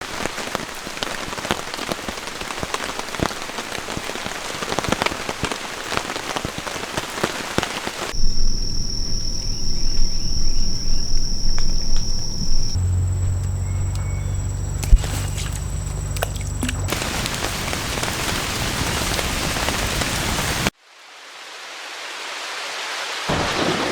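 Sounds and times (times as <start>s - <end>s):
rain pattering: 0.0s - 20.8s, 23.3s - 23.9s
low rumble: 8.2s - 18.7s.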